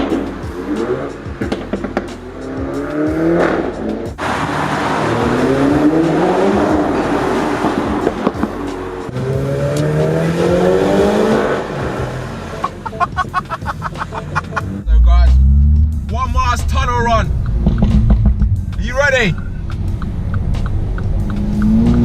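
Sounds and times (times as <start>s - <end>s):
car engine accelerating: 0.0s - 22.0s
exhaust pops and crackles: 1.4s - 2.2s, 16.0s - 22.0s.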